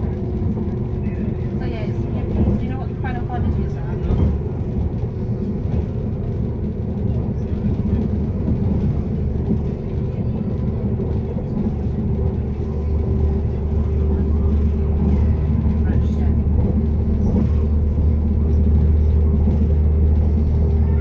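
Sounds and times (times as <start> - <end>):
train cabin rumble: 0.0 - 21.0.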